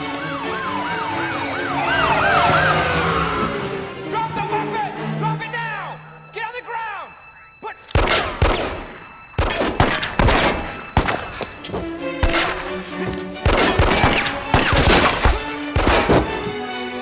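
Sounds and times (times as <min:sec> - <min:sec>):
film music: 0:00.0 - 0:17.0
gunshots: 0:07.9 - 0:16.6.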